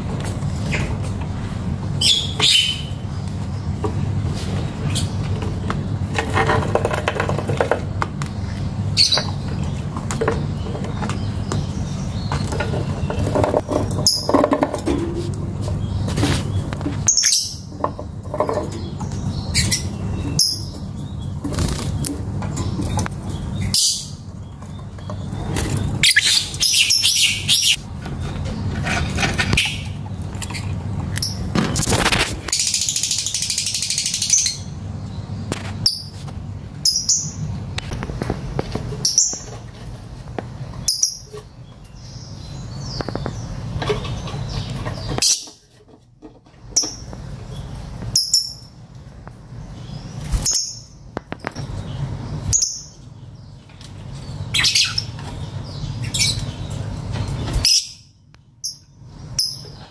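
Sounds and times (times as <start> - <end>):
lovebird chirping: 25.2 - 27.8.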